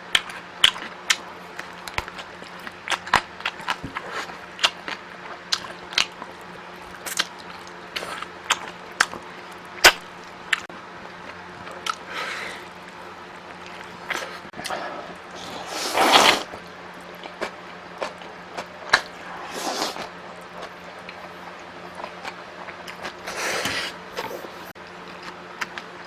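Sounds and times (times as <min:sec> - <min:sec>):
close chewing with sharp clicks: 0:00.0 - 0:12.1, 0:16.5 - 0:19.2, 0:21.9 - 0:26.0.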